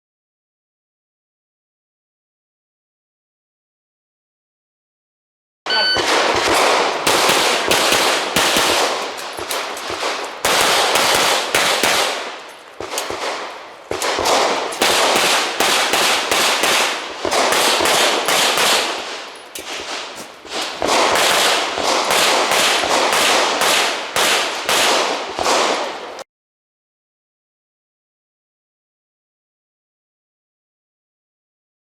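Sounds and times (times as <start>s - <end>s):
rapid gunshots with echo: 5.8s - 26.2s.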